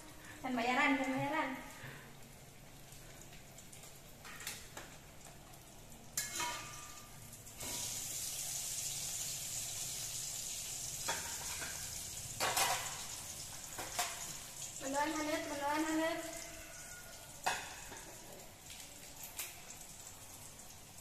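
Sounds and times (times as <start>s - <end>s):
food sizzling in oil: 0.0s - 21.0s
spatula scraping a wok: 6.2s - 6.7s.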